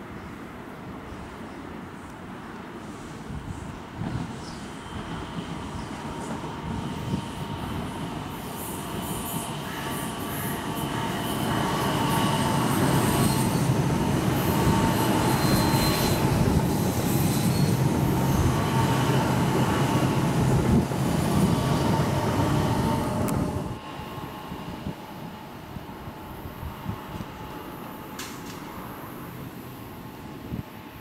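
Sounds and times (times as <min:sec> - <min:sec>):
distant train: 0:00.0 - 0:31.0.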